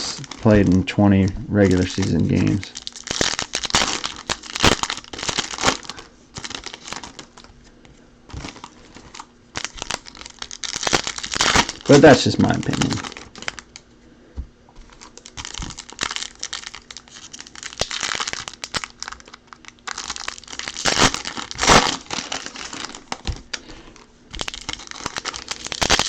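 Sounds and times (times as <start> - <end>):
foil wrappers crinkling and tearing: 0.0 - 0.9, 1.6 - 7.6, 8.3 - 13.8, 14.8 - 26.0.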